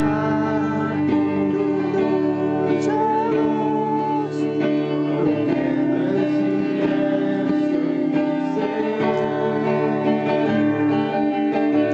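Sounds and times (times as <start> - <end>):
acoustic guitar strumming: 0.0 - 11.9
faint singing: 0.0 - 11.9.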